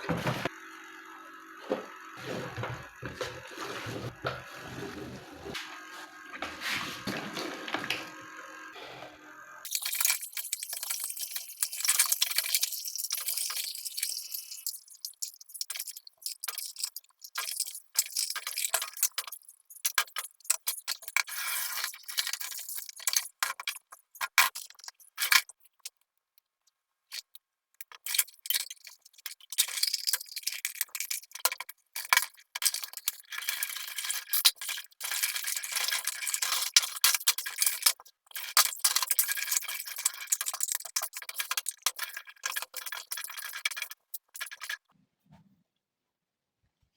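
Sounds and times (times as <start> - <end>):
hand grinder clicking and rattling: 27.8 - 44.8.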